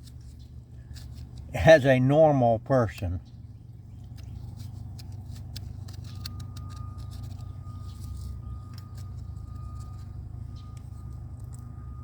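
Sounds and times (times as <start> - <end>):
low engine drone: 0.0 - 12.0
faint thin whine: 5.5 - 12.0.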